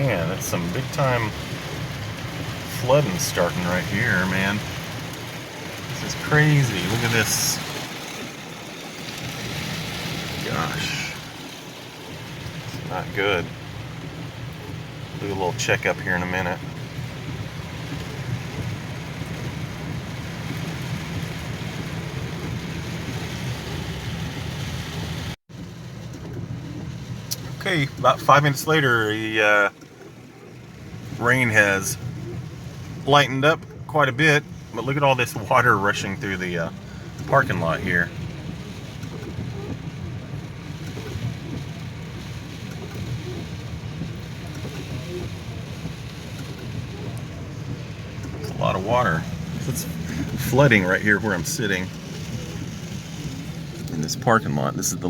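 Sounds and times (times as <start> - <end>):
floodwater rushing: 0.0 - 55.0
heavy rain pelting a vehicle: 0.0 - 55.0
low engine hum: 0.0 - 55.0
low rumble: 36.2 - 55.0.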